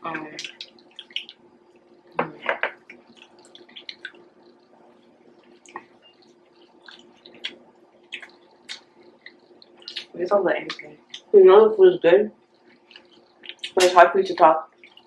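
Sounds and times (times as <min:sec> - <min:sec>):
wet chewing: 0:00.0 - 0:11.4, 0:12.4 - 0:14.0, 0:14.7 - 0:15.0
faint steady hum: 0:00.0 - 0:15.0
mouth clicks: 0:00.2 - 0:01.4, 0:02.8 - 0:04.6, 0:05.5 - 0:11.3, 0:12.6 - 0:14.0.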